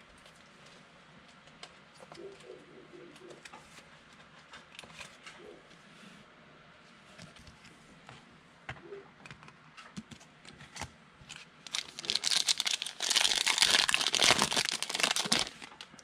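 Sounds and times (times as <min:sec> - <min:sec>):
foil card pack tearing and crinkling: 0:11.7 - 0:16.0.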